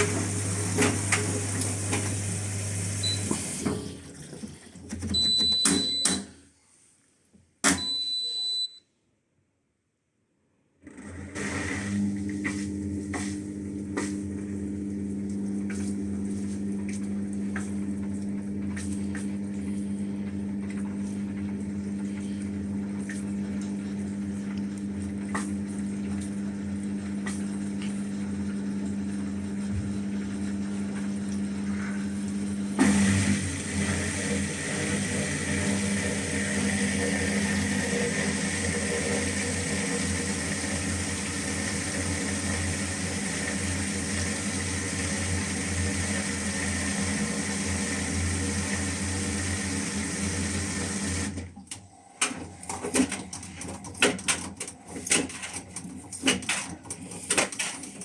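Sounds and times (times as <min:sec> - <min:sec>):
washing machine clunk: 0:00.0 - 0:02.4, 0:03.0 - 0:06.4, 0:07.6 - 0:08.3, 0:52.2 - 0:58.0
washing machine humming: 0:00.0 - 0:06.5, 0:07.7 - 0:08.8, 0:10.8 - 0:58.0.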